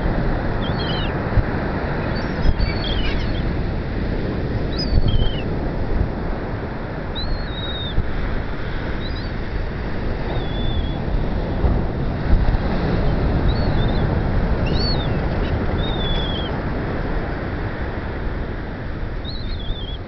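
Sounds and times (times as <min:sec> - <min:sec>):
wind buffeting microphone: 0:00.0 - 0:20.0
birds calling: 0:00.5 - 0:03.8, 0:04.4 - 0:05.5, 0:07.2 - 0:08.0, 0:08.7 - 0:09.4, 0:10.2 - 0:11.1, 0:13.0 - 0:17.1, 0:19.2 - 0:20.0.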